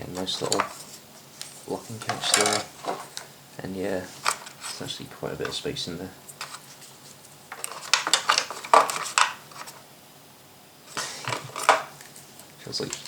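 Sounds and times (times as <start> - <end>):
hard plastic clicks and scraping: 0.2 - 3.3, 7.5 - 9.8, 10.9 - 13.0.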